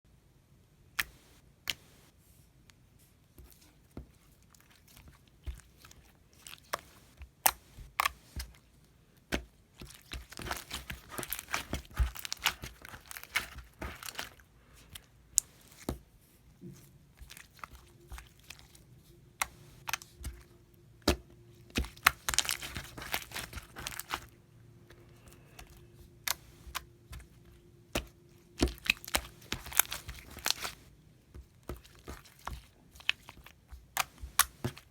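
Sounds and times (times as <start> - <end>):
slime crackling: 9.3 - 15.9, 17.1 - 24.4, 25.0 - 30.9.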